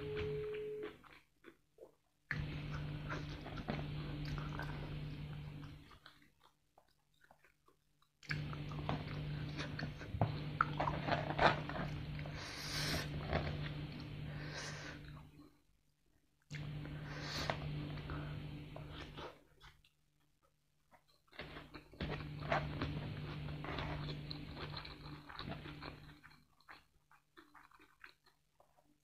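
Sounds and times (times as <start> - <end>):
low steady hum: 0.0 - 1.2, 2.3 - 6.3, 8.2 - 15.7, 16.5 - 19.6, 21.4 - 26.4
crunchy chewing: 20.9 - 29.0.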